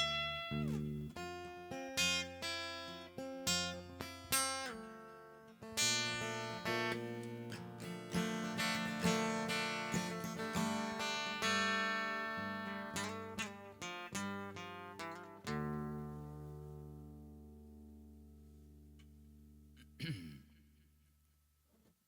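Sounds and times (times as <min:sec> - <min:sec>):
acoustic guitar playing: 0:00.0 - 0:19.8.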